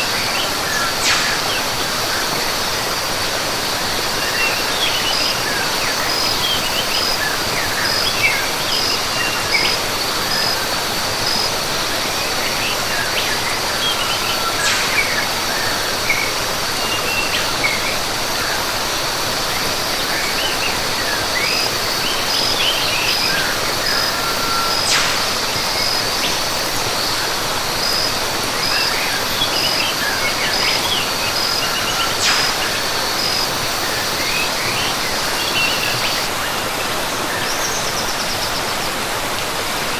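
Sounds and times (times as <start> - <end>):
insect pulsing call: 0.0 - 36.3
waterfall rushing: 0.0 - 39.9
birds chirping: 12.4 - 17.8, 20.1 - 36.3.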